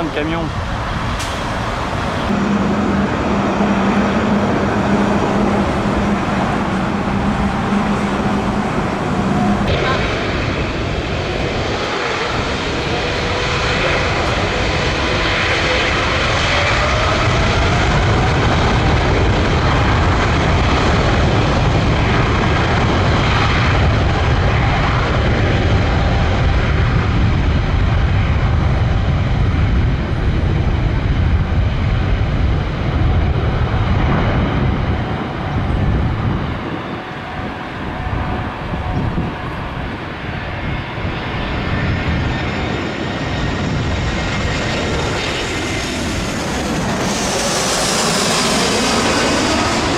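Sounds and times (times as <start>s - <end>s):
jet airliner passing overhead: 0.0s - 49.9s.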